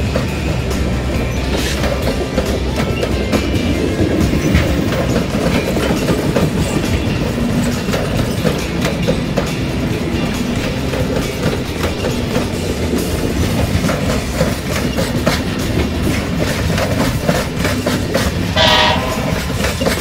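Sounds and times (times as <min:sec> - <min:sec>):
train wheels clicking over rail joints: 0:00.0 - 0:20.0
distant train horn blast: 0:18.6 - 0:20.0.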